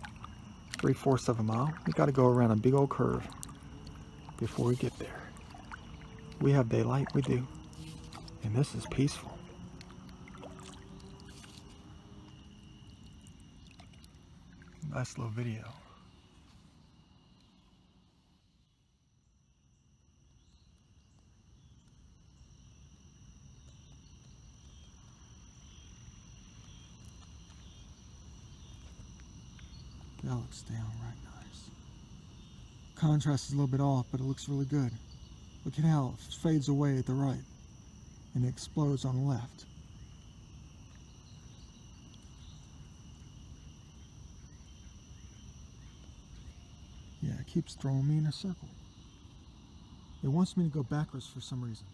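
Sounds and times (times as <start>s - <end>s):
faint low rumble: 0.0s - 17.6s
crickets trilling: 0.0s - 51.9s.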